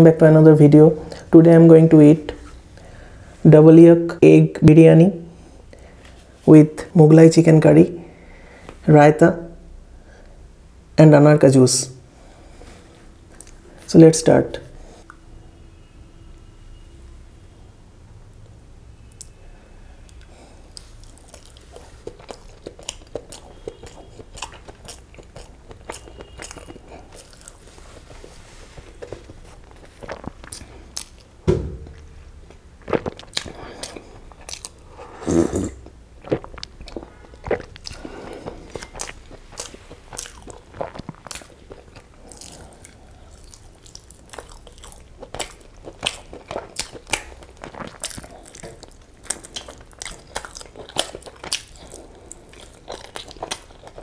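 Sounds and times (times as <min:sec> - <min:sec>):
chewing and lip smacking: 0:20.1 - 0:31.4, 0:32.5 - 0:35.1, 0:35.7 - 0:54.0
dull thump: 0:31.4 - 0:32.2.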